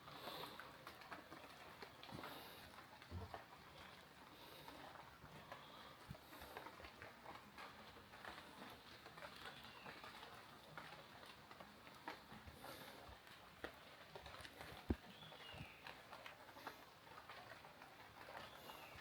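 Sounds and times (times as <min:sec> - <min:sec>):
bird chirp: 0:15.1 - 0:15.9.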